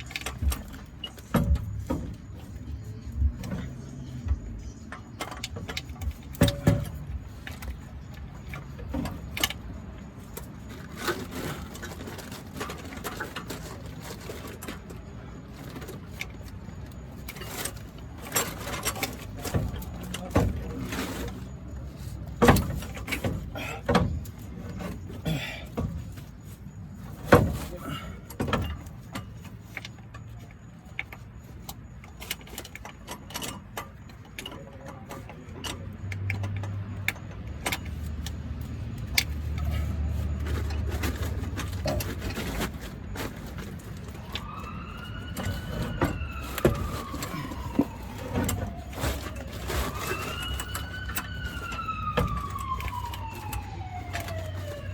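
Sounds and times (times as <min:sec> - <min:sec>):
tools clanking and knocking: 0:00.0 - 0:54.9
emergency vehicle siren wailing: 0:43.2 - 0:54.9.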